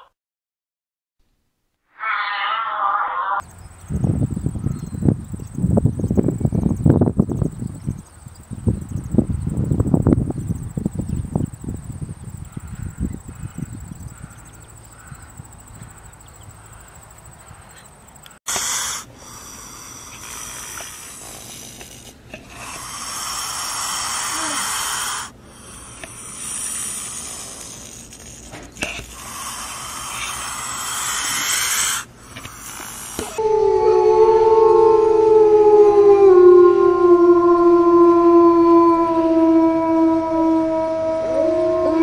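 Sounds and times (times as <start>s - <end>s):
snake hissing: 18.4s - 33.5s.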